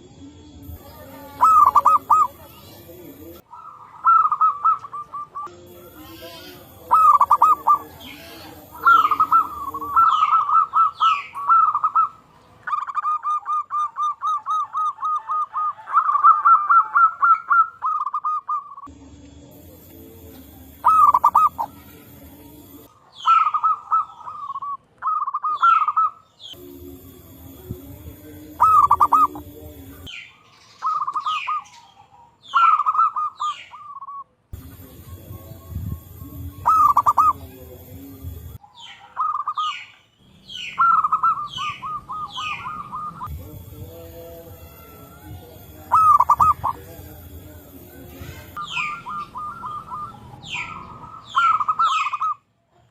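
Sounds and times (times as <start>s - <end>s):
dove cooing: 0.7s - 18.9s, 19.6s - 30.2s, 30.8s - 39.9s, 40.5s - 52.4s
low hum: 18.9s - 22.9s, 26.6s - 30.1s, 42.6s - 51.2s
high descending bird chirps: 20.8s - 21.8s, 38.8s - 43.3s, 48.6s - 52.4s.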